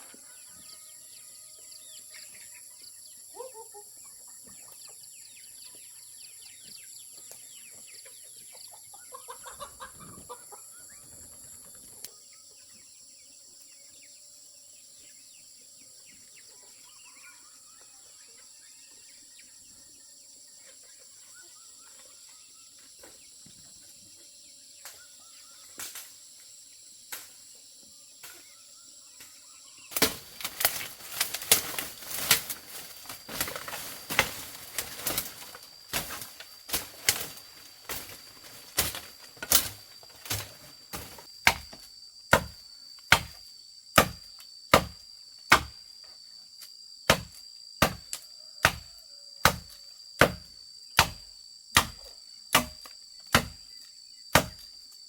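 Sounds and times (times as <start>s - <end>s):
chickens clucking: 2.3s - 5.8s, 6.6s - 12.8s
wings flapping and scuffling: 29.9s - 41.3s.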